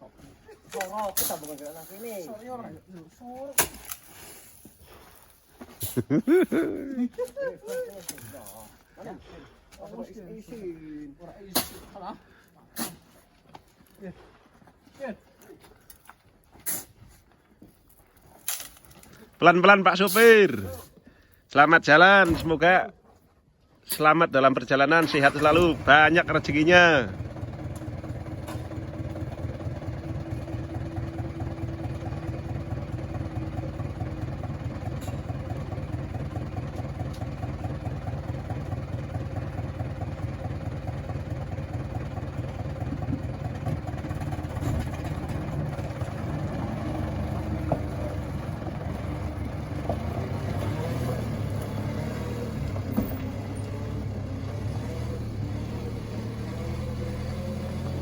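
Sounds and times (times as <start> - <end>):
truck engine pulling away: 25.0 - 58.0.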